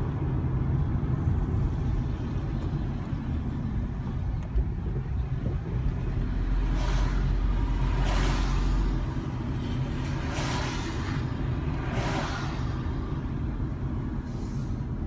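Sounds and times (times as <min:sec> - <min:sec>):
car engine and tyres rumbling: 0:00.0 - 0:15.0
traffic whooshing past: 0:06.0 - 0:15.0.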